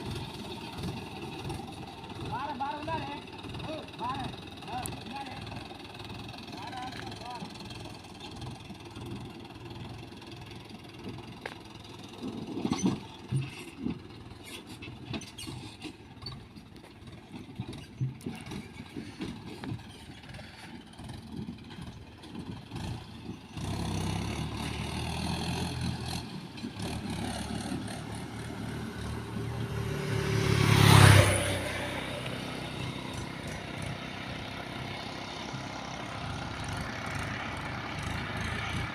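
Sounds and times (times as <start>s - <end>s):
diesel engine running: 0.0s - 38.9s
clanks and knocks: 12.2s - 20.3s.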